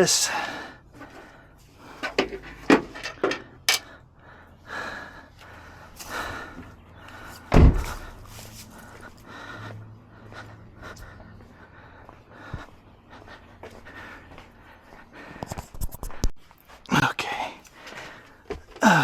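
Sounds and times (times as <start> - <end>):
tools clicking and knocking: 2.0 - 3.9
heavy thump: 7.5 - 8.0.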